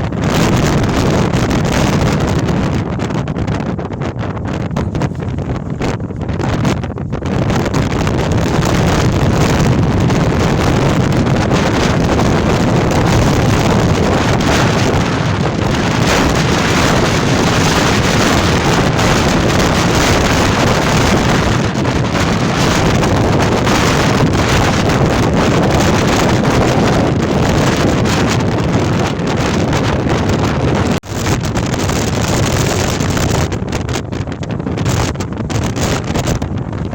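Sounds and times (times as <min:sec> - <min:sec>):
strong wind on microphone: 0:00.0 - 0:36.9.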